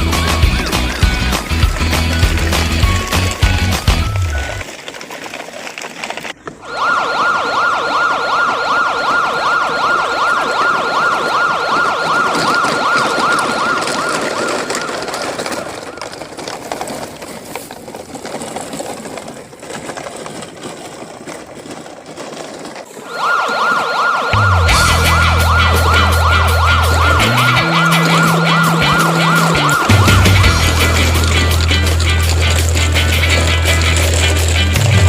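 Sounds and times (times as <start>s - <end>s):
police siren yelping: 6.6s - 16.0s, 22.9s - 33.2s.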